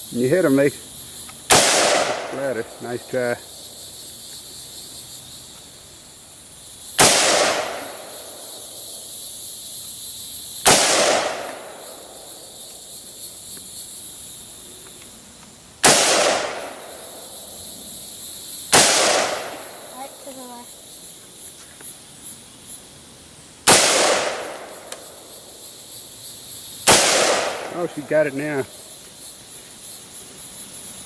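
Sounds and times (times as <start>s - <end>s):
rifle gunshots: 1.5s - 2.5s, 7.0s - 8.0s, 10.6s - 11.7s, 15.8s - 16.8s, 18.7s - 19.6s, 23.7s - 24.7s, 26.9s - 28.0s.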